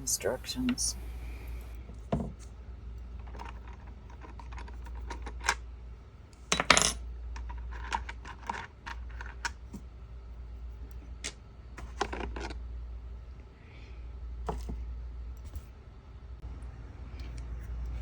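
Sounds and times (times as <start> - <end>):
steady low hum: 0.0 - 3.2, 12.6 - 18.0.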